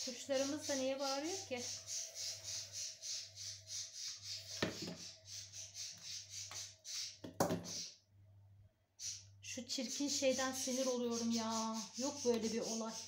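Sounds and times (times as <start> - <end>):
pet birds chirping: 0.0 - 8.2, 8.9 - 13.0
coffee pot knocking on base: 7.2 - 7.7.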